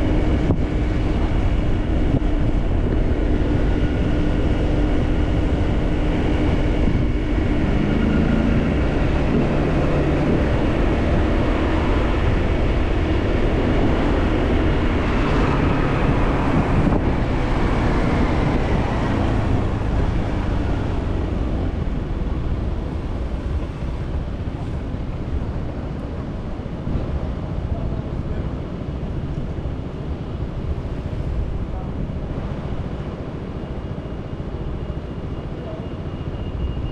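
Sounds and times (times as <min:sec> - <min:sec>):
motorcycle engine cruising: 0:00.0 - 0:25.5
road and wind noise: 0:00.0 - 0:36.9.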